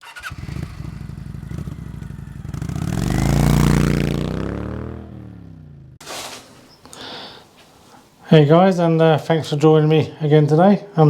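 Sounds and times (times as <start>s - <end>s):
motorcycle engine revving: 0.0s - 6.7s.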